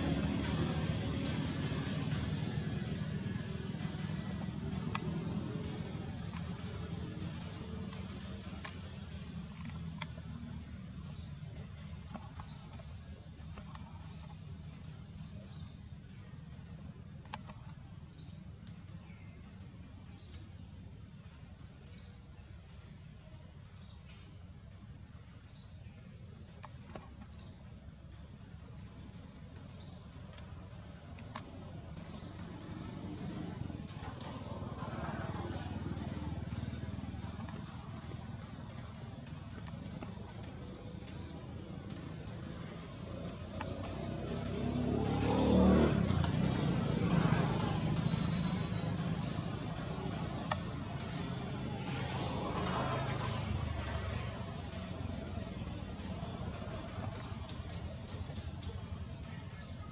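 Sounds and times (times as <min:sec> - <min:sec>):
bird chirping: 0:00.0 - 0:59.9
low outdoor rumble: 0:00.0 - 0:59.9
faint clicks: 0:03.8 - 0:15.6, 0:28.8 - 0:44.0, 0:55.2 - 0:59.6.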